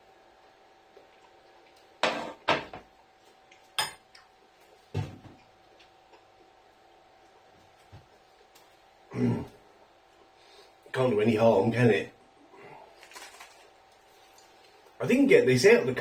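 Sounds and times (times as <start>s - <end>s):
faint steady hum: 0.0s - 16.0s
dishes and cutlery clattering: 2.0s - 2.8s.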